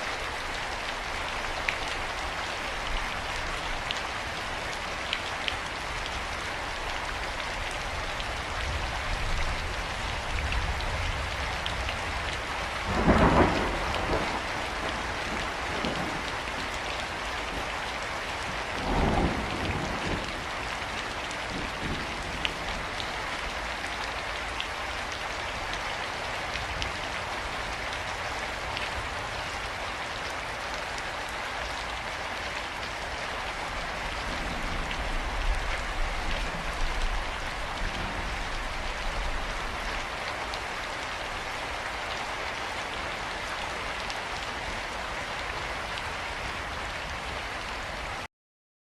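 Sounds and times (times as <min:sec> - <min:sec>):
heavy rain: 0:00.0 - 0:48.3
thunder rumbling: 0:12.8 - 0:17.7, 0:18.4 - 0:20.6, 0:33.9 - 0:39.8.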